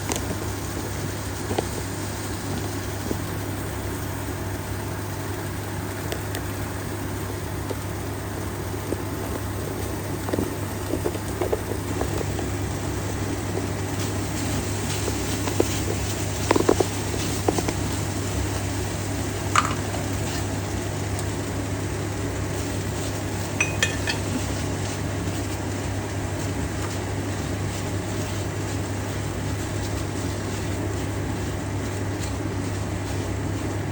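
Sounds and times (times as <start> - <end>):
pots and pans clinking: 19.5 - 20.4, 23.6 - 24.7.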